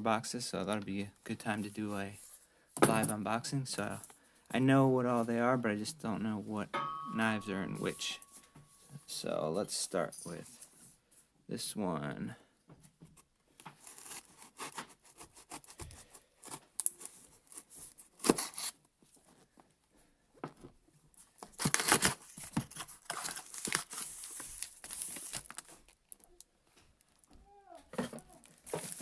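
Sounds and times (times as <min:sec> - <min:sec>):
package tearing and crinkling: 0:13.8 - 0:18.8, 0:21.4 - 0:26.5.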